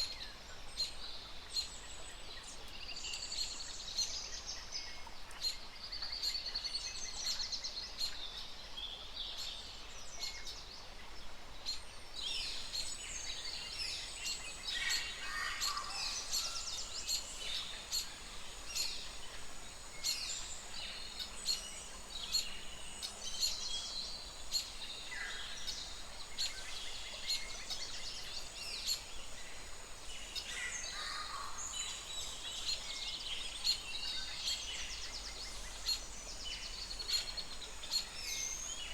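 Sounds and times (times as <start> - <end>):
steady background hiss: 0.0 - 38.9
birds chirping and trilling: 12.2 - 38.9.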